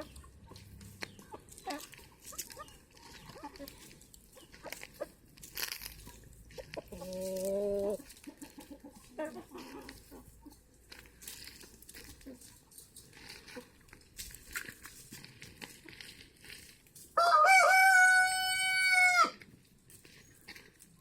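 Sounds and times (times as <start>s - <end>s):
chickens clucking: 0.0s - 21.0s
chicken drawn-out call: 17.2s - 19.4s.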